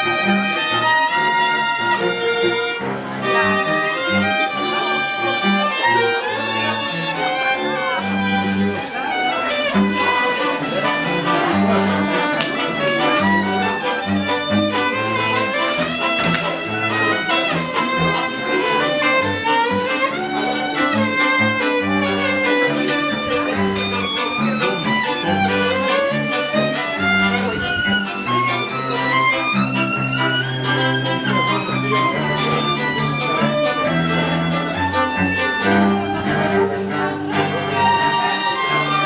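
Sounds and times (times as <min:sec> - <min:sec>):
violins playing melody: 0:00.0 - 0:39.0.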